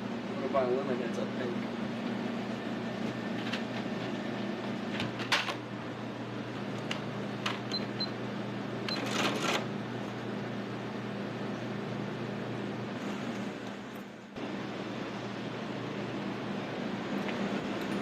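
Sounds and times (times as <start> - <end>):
steady low hum: 9.7 - 18.0.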